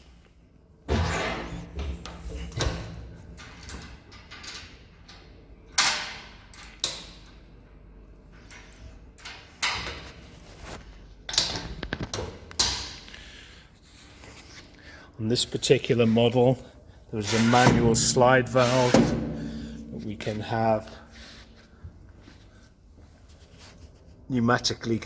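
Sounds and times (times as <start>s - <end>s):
metal blender clunks and knocks: 17.4s - 20.5s.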